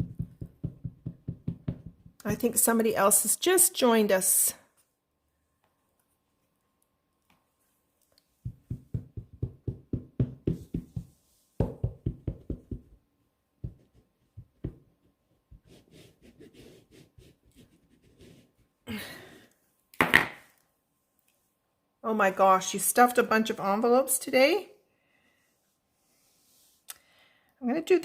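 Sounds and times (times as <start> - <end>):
rubber stamp tapping ink pad: 8.5 - 13.0.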